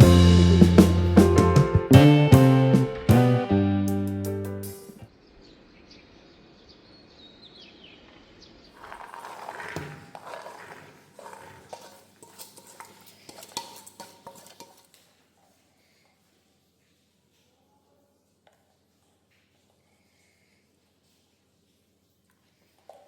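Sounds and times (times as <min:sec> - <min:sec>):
household things clattering: 0:08.8 - 0:15.1.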